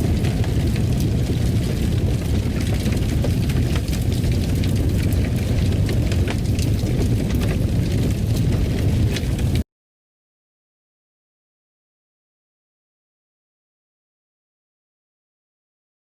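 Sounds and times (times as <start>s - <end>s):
wood fire crackling and popping: 0.0s - 9.6s.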